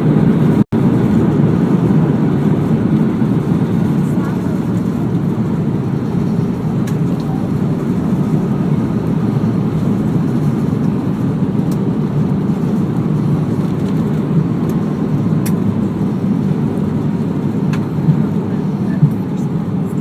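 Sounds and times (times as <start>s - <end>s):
airplane cabin rumble: 0.0s - 20.0s.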